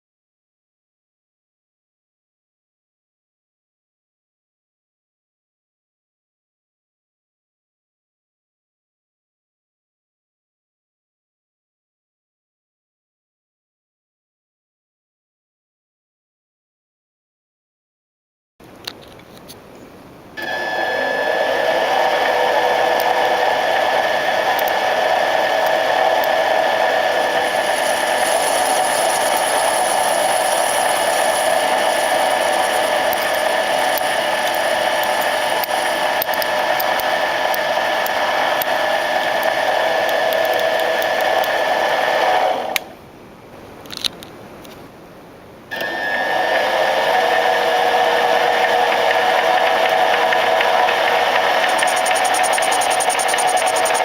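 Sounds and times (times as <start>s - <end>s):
model engine whining: 20.4s - 42.9s, 45.7s - 54.0s.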